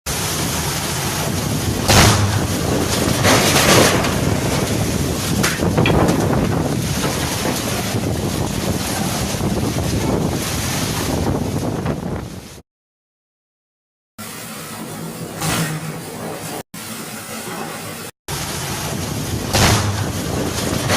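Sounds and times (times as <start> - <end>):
storm wind buffeting microphone: 0.1 - 12.6, 18.3 - 20.9.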